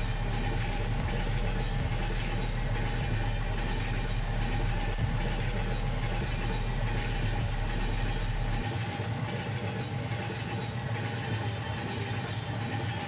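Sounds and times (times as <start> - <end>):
engine idling: 0.0 - 8.7.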